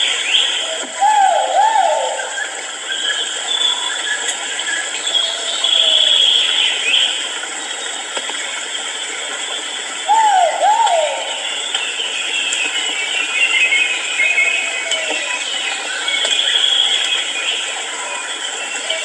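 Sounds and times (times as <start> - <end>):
pheasant hooting call: 0.0 - 2.7, 10.0 - 11.7.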